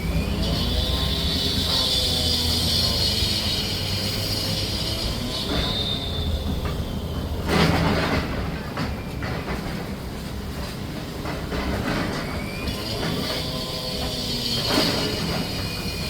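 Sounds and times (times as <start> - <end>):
loud scraping noise: 0.0 - 8.6, 11.6 - 16.0
high metallic squeal: 0.0 - 9.8, 11.9 - 16.0
heavy machinery rumbling: 0.0 - 16.0.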